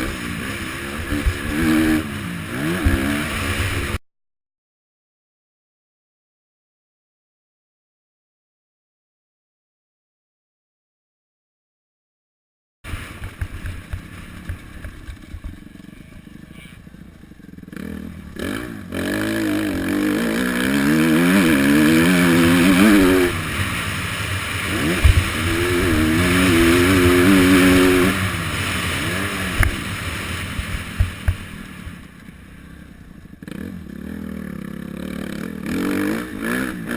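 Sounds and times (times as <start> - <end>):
dirt bike engines revving: 0.0 - 4.0, 12.9 - 36.9.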